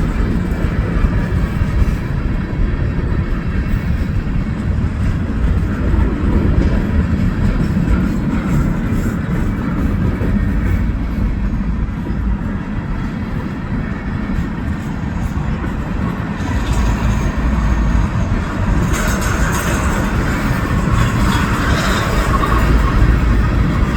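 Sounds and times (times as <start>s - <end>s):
train rumbling past: 0.0s - 23.9s.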